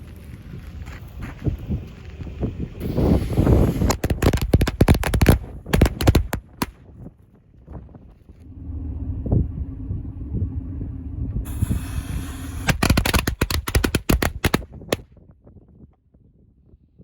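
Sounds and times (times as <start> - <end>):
firecracker fuse hiss: 2.8 - 6.2, 11.5 - 14.6
firecrackers banging: 2.9 - 6.9, 12.4 - 15.0
low steady hum: 5.0 - 14.9.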